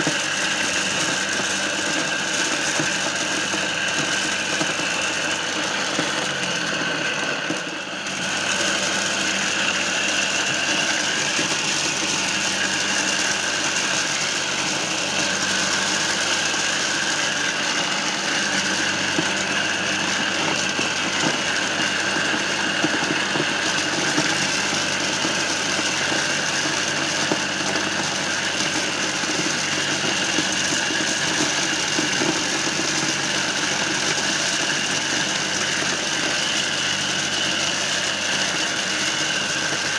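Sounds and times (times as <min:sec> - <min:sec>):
corn sheller motor running: 0:00.0 - 0:39.9.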